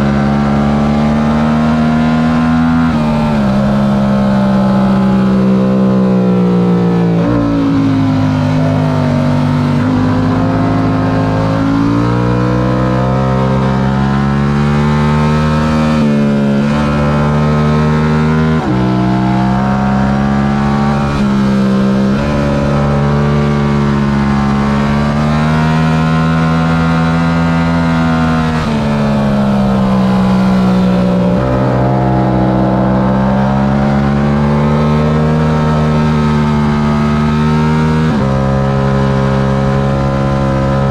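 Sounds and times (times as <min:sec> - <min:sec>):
motorcycle engine running hard: 0:00.0 - 0:40.9.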